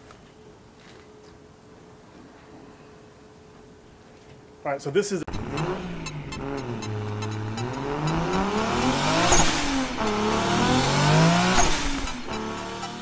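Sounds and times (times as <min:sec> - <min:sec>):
car engine accelerating: 0:05.3 - 0:13.0.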